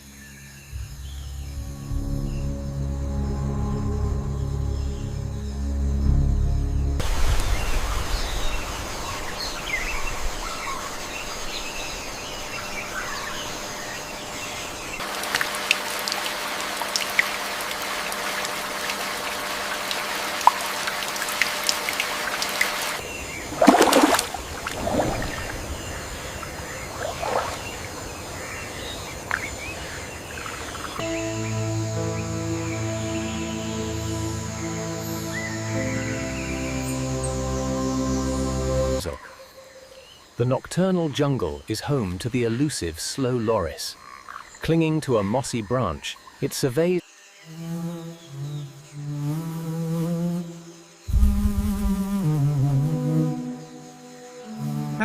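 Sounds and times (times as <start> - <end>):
music: 0.0 - 7.5, 31.0 - 39.2, 47.5 - 55.0
running water hiss: 7.0 - 40.4.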